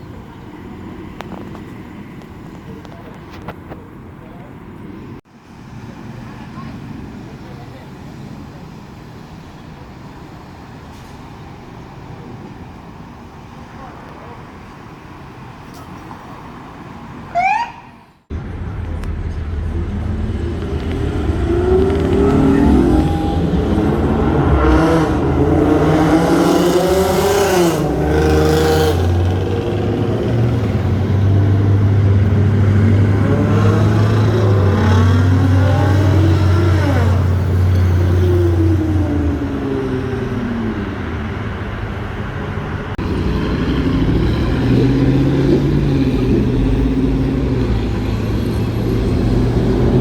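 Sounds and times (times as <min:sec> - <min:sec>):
street traffic: 0:00.0 - 0:50.0
rush of noise: 0:18.3 - 0:37.4
vehicle engine revving: 0:18.3 - 0:50.0.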